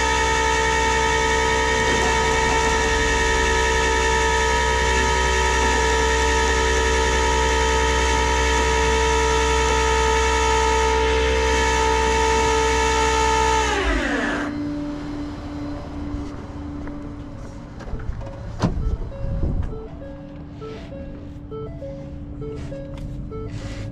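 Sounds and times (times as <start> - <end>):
low steady hum: 0.0 - 11.4
machine whine winding down: 0.0 - 23.9.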